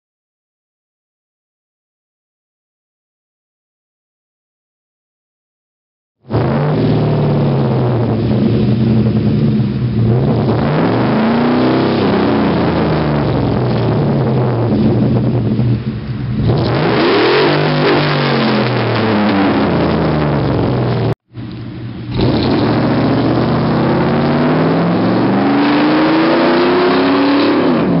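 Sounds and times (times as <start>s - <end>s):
engine revving: 6.3s - 28.0s.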